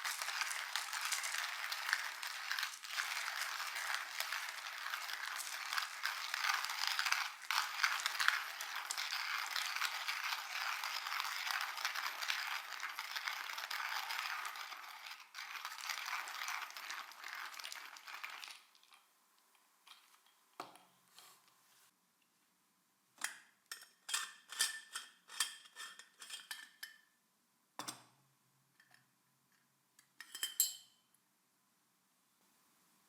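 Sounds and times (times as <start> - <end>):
metal and dishes clinking: 30.2 - 31.0.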